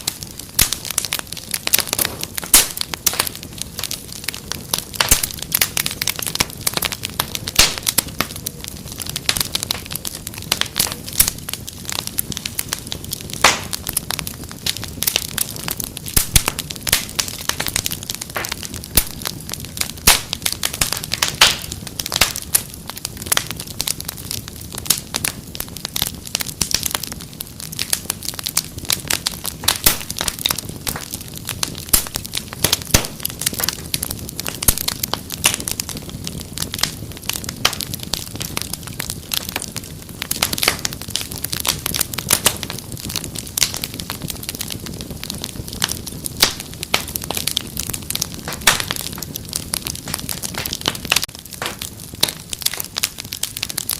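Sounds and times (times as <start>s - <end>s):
sharp pops and snaps: 0.0s - 3.3s, 4.9s - 6.6s, 13.3s - 14.0s, 15.0s - 22.8s, 29.6s - 35.7s, 45.8s - 53.9s
wood fire crackling: 0.0s - 53.9s.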